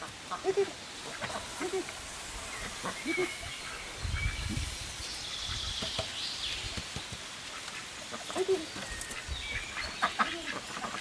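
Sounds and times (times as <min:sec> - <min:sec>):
thin high bird or insect tones: 0:00.9 - 0:07.2.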